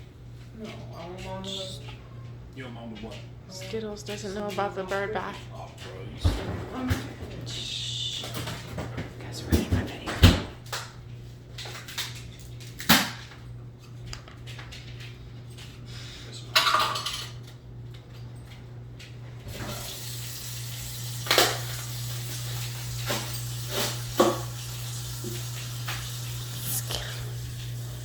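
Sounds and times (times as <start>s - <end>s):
low steady hum: 0.0s - 18.6s
water running from a tap: 19.5s - 28.0s.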